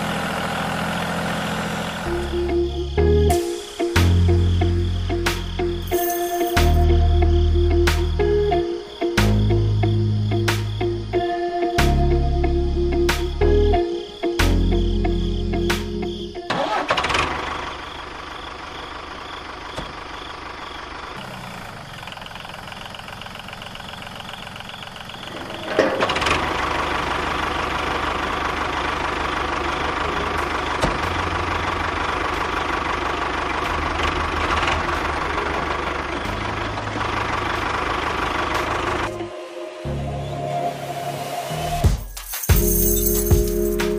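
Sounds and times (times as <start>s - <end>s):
tractor engine chugging: 16.5s - 39.2s.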